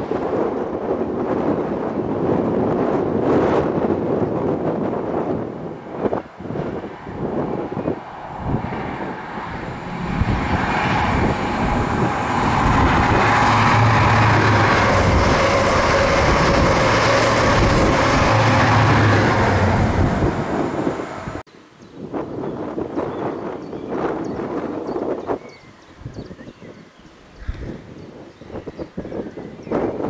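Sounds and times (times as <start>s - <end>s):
passenger train passing: 0.0s - 21.5s
low hum: 7.5s - 21.4s.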